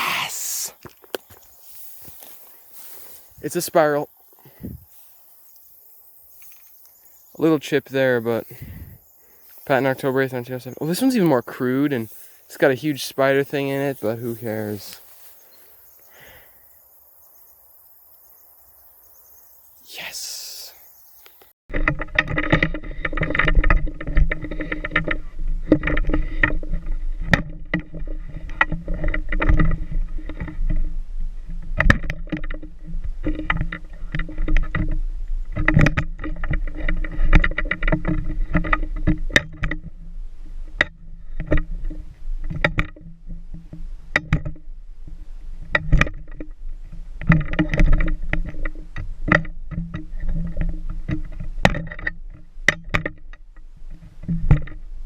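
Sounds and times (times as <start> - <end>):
knocks and rattles: 21.7 - 30.9.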